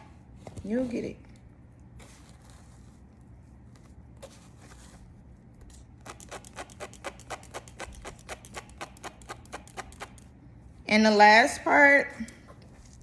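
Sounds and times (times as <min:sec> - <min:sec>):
tweezers clicking: 0:06.0 - 0:10.3.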